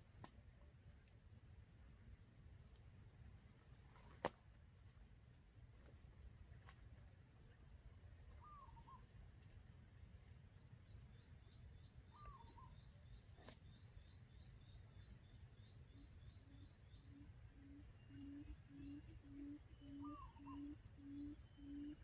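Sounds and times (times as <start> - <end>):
quail calls: 16.4 - 22.0.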